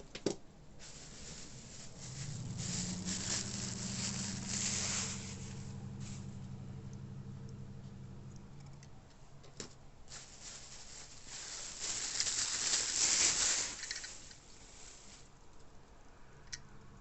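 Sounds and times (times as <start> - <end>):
packaging crinkling and rustling: 0.8 - 5.6, 10.1 - 15.3.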